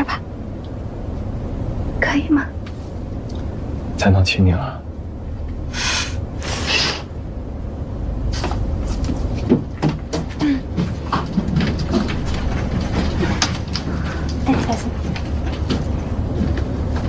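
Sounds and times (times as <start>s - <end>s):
aircraft cabin rumble: 0.0s - 17.0s
short breathy hisses: 5.7s - 7.0s.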